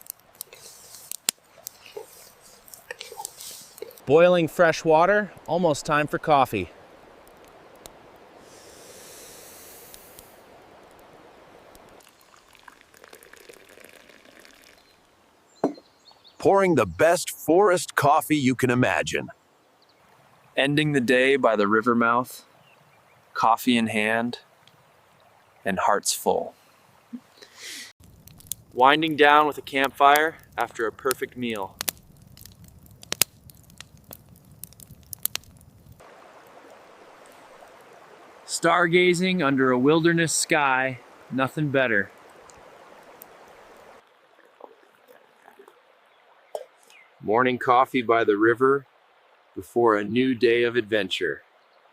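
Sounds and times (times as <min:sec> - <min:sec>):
water boiling: 0:00.0 - 0:17.2, 0:23.2 - 0:47.1
campfire crackling: 0:00.0 - 0:51.9.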